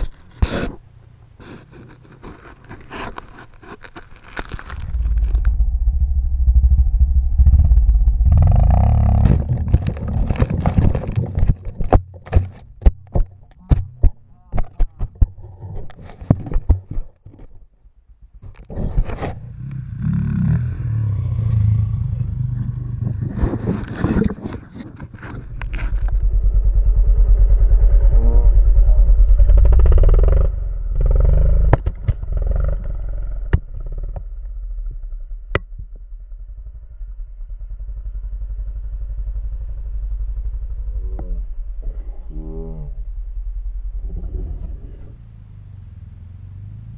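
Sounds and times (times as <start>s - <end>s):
motorbike engine running: 4.5s - 11.7s, 19.4s - 23.6s, 25.5s - 41.8s.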